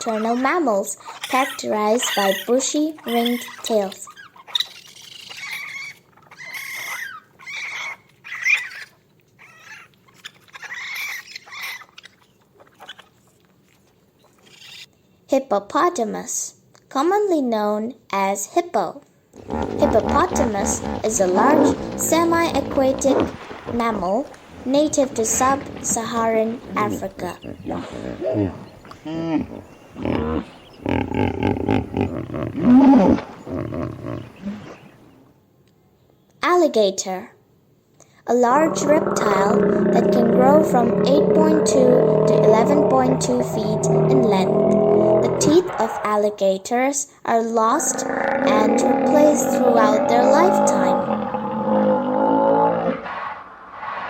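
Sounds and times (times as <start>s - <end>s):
hippopotamus calling: 19.4s - 35.3s, 38.4s - 46.3s, 47.6s - 54.0s.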